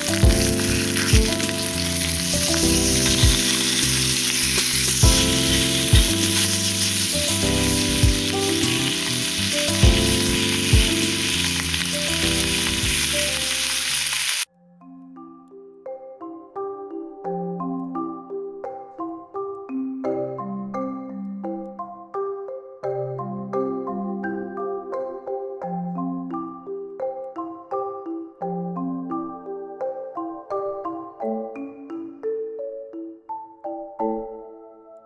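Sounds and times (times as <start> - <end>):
meat sizzling in a pan: 0.0 - 14.5
soft mallet percussion music: 0.0 - 35.0
music with thumping beat: 0.2 - 1.5, 2.6 - 3.9, 4.5 - 8.8, 9.7 - 11.1, 12.3 - 13.0.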